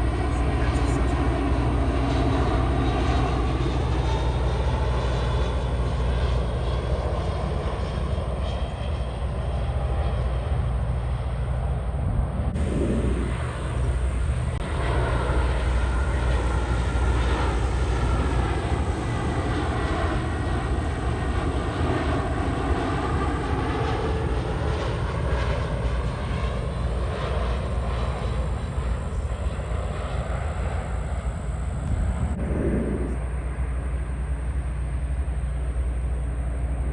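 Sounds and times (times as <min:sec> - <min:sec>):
low rumble: 0:00.0 - 0:21.5, 0:25.6 - 0:36.6
jet engine whine: 0:00.0 - 0:36.9.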